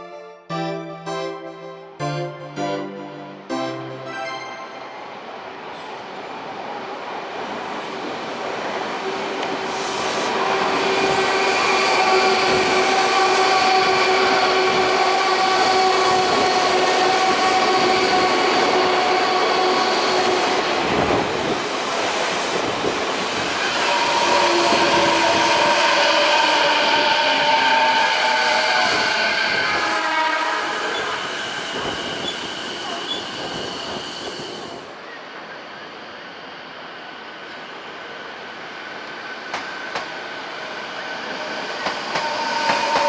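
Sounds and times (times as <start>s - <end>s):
electric train inverter whine: 22.6s - 43.0s.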